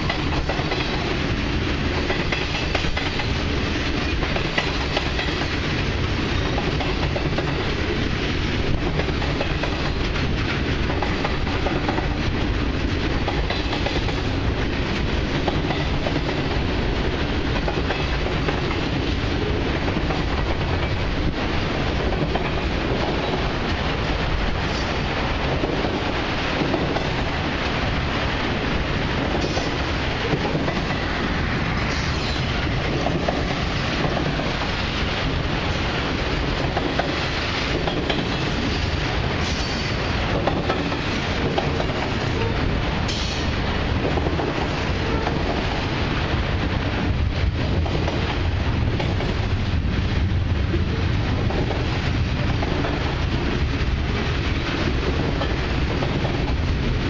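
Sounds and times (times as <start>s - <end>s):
wheels clacking over rail joints: 0.0s - 27.8s, 28.5s - 45.8s
train wheels rolling on rail: 0.0s - 57.0s.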